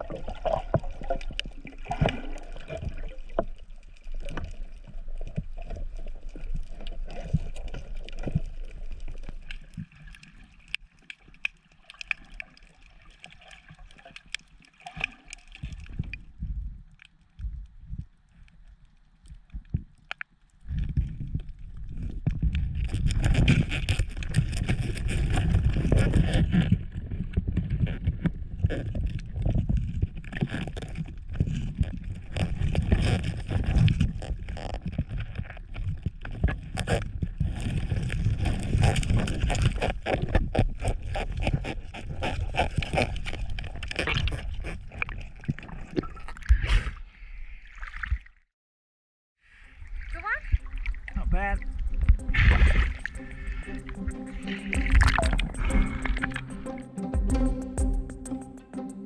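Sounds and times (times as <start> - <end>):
water sloshing and gurgling: 0.0 - 48.5, 49.5 - 58.9
low rumble: 50.5 - 59.0.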